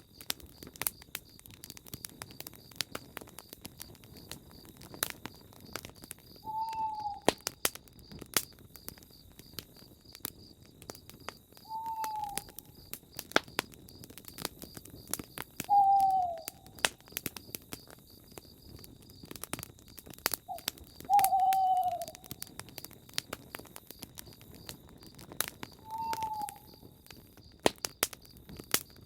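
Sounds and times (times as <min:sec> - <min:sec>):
campfire crackling: 0:00.0 - 0:29.0
owl hooting: 0:06.4 - 0:07.3, 0:11.7 - 0:12.6, 0:15.7 - 0:16.8, 0:20.5 - 0:22.3, 0:25.8 - 0:26.8.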